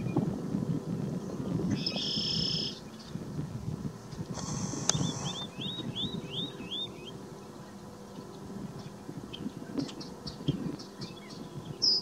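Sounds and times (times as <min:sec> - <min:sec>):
bird buzzy call: 0:01.7 - 0:03.1, 0:04.3 - 0:07.8
bird whistled notes: 0:01.8 - 0:02.8, 0:04.9 - 0:07.1.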